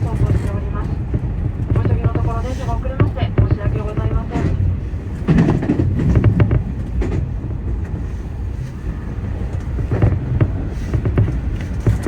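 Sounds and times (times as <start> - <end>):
electric train rumbling: 0.0 - 12.0
wheels clicking over rail joints: 9.5 - 12.0.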